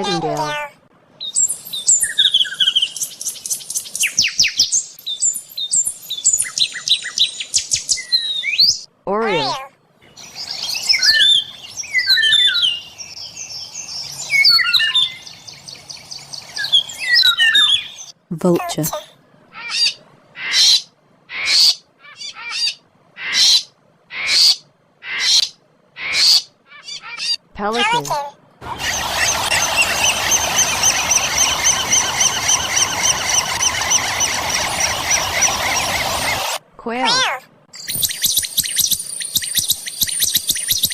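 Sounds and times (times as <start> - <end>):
chorus of high bird chirps: 0.0 - 40.9
evenly repeating chirp: 37.8 - 40.9.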